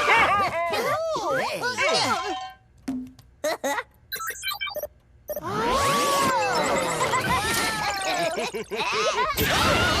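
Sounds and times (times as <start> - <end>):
squeaky chattering cartoon voices: 4.1 - 10.0.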